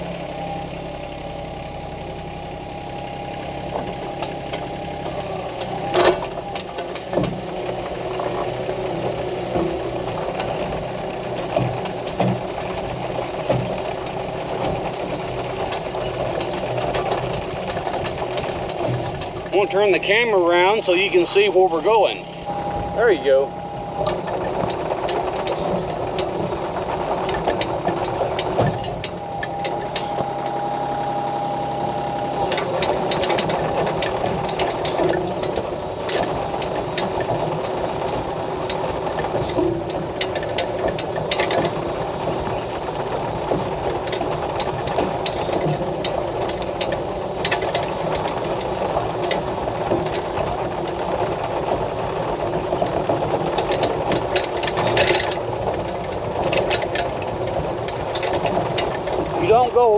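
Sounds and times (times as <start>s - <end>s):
excavator diesel engine running: 0.0s - 59.9s
steady whine: 0.0s - 59.9s
metal clanks and rattles: 5.6s - 31.4s, 32.1s - 59.9s.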